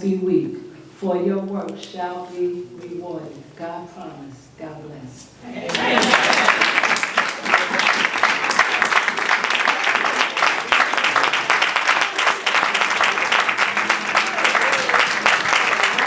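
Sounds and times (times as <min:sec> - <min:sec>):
crowd applauding: 0:05.7 - 0:16.0.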